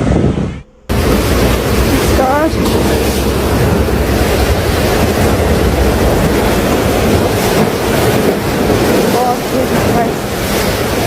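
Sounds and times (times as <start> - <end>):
deep rumble: 0.0 - 11.0
loud rushing noise: 0.0 - 11.0.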